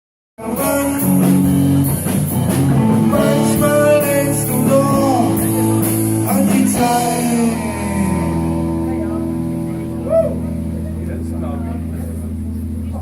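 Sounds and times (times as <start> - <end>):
song with singing and guitar: 0.4 - 10.8.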